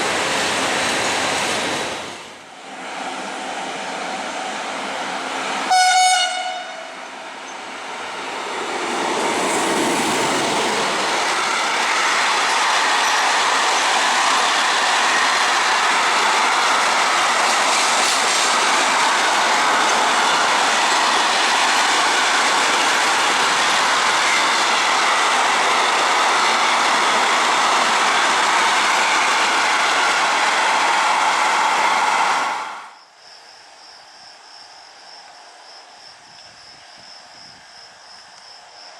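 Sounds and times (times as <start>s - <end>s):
train wheels rushing on rails: 0.0s - 33.0s
train horn: 5.7s - 7.0s.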